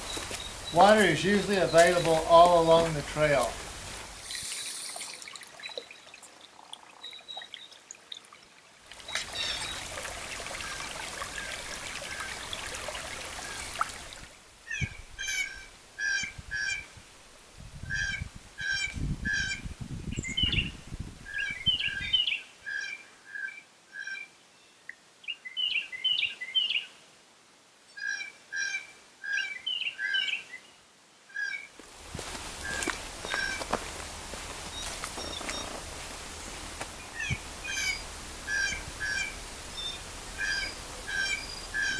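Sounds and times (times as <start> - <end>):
water trickling: 0.0 - 14.4.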